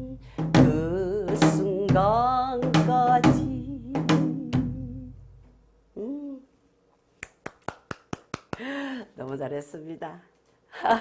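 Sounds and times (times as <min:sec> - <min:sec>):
person singing: 0:00.0 - 0:05.2, 0:06.0 - 0:06.5.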